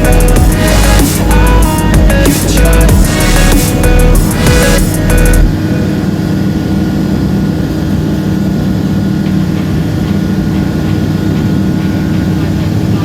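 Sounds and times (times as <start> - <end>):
loud music: 0.0 - 6.1
aircraft engine and propeller droning: 0.0 - 13.0.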